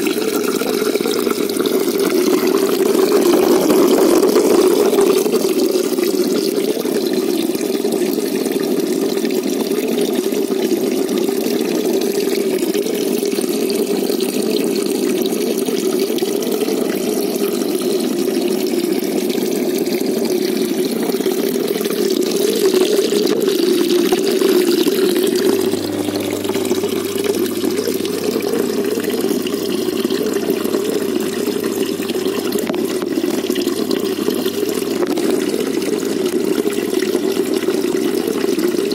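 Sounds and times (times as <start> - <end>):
running water rushing: 0.0 - 6.6, 24.3 - 38.9.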